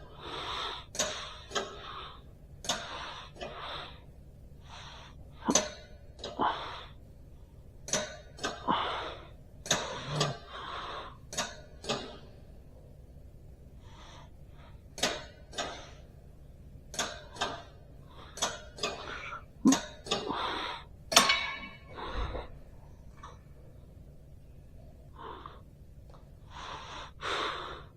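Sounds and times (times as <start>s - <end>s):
sharp clicks and knocks: 14.9s - 16.0s, 16.9s - 20.4s.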